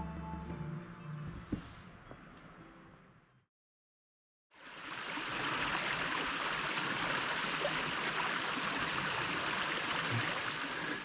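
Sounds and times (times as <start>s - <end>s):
soft background music: 0.0s - 3.2s
mountain creek rushing: 4.6s - 11.0s.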